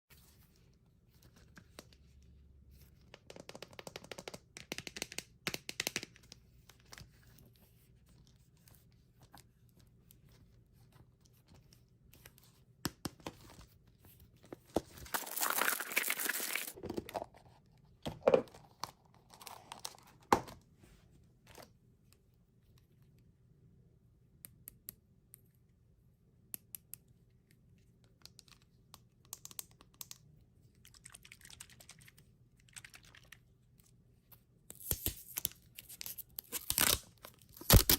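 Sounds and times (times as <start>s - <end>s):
wrapper tearing: 15.0s - 16.8s, 34.8s - 37.9s
candy wrappers crinkling: 15.0s - 17.1s.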